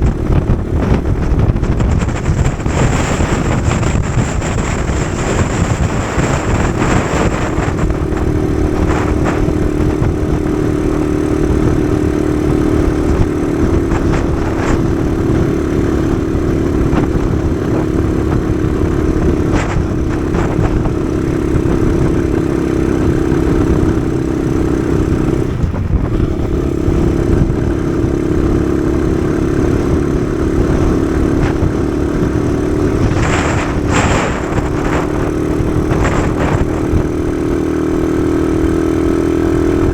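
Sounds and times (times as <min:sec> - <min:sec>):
small motorcycle engine running: 0:00.0 - 0:39.9
wind rumble on microphone: 0:00.0 - 0:39.9.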